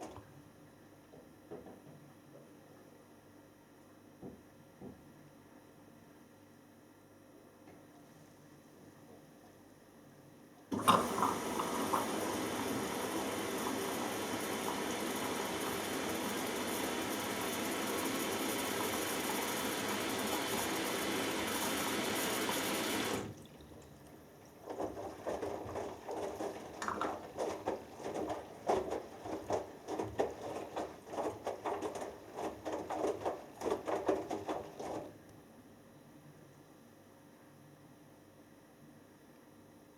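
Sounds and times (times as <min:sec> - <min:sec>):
water sloshing in drum: 0:10.7 - 0:35.2
water inlet valve hissing: 0:17.2 - 0:23.3.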